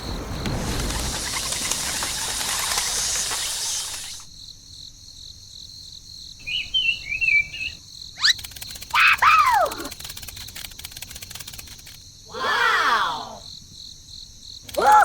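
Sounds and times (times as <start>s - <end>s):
steady rushing noise: 0.0s - 4.3s
insect trilling: 0.1s - 4.3s, 6.4s - 13.6s, 14.6s - 15.0s
bird chirping: 6.4s - 8.6s.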